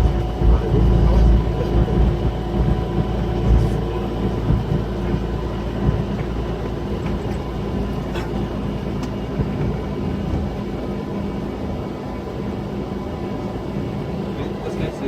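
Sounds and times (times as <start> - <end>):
coach diesel engine rumbling: 0.0 - 15.0.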